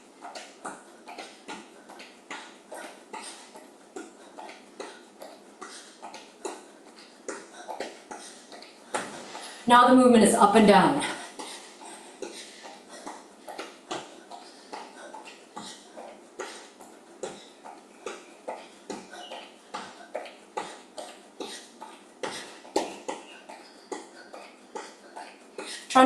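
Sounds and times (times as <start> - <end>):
hard breathing: 0.0 - 9.7, 11.0 - 26.0.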